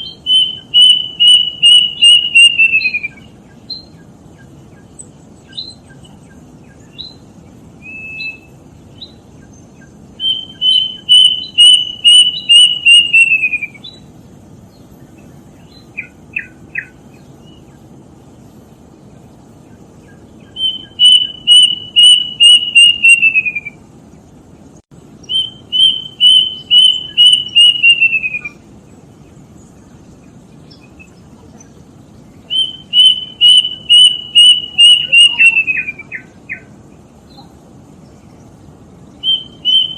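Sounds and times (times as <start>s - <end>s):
cuckoo whistled notes: 0.0s - 3.9s, 10.2s - 13.9s, 20.6s - 23.8s, 25.3s - 28.6s, 32.5s - 36.6s, 39.2s - 39.9s
faint low hiss: 0.0s - 39.9s.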